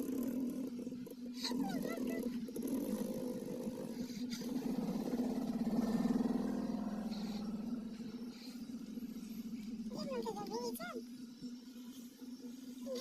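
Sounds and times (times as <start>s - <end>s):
dog snoring: 0.0s - 10.3s.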